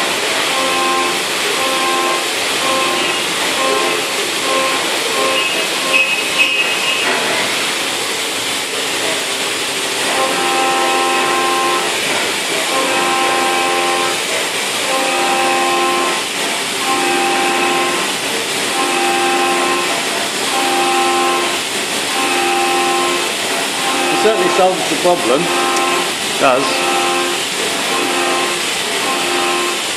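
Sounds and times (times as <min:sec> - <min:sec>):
pitched cutting tone: 0:00.5 - 0:07.1, 0:10.1 - 0:12.0, 0:12.7 - 0:14.2, 0:14.8 - 0:29.9.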